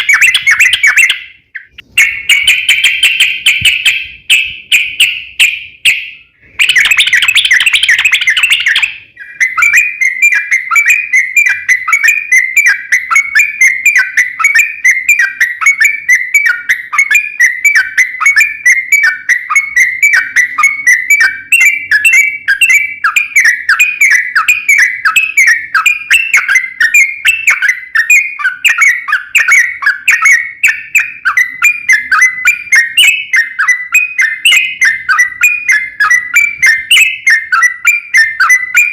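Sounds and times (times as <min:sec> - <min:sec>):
harsh bird chatter: 0:00.0 - 0:12.1
bulbul song: 0:00.0 - 0:38.9
rapid repeated bird chirping: 0:00.0 - 0:38.9.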